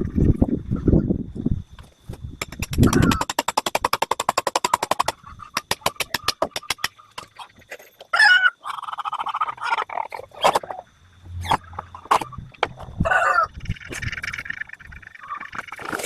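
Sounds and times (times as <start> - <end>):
hens clucking and squawking: 4.5 - 16.0.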